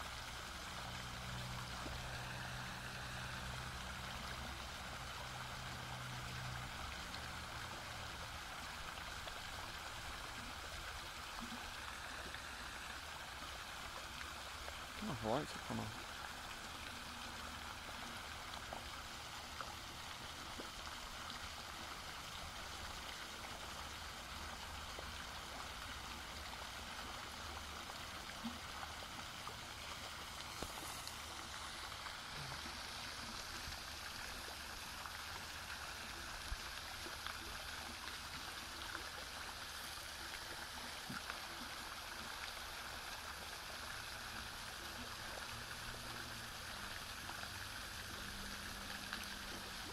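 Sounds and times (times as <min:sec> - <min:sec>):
running water flowing: 0:00.0 - 0:49.9.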